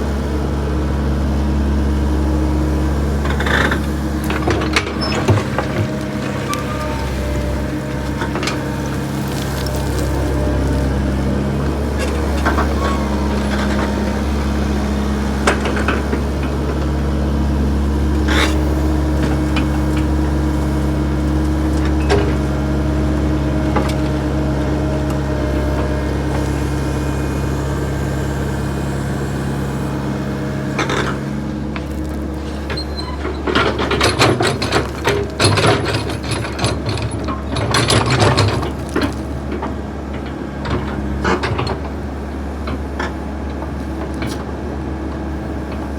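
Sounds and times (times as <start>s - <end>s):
backhoe engine running: 0.0s - 45.9s
rattling and clanking: 30.8s - 42.0s.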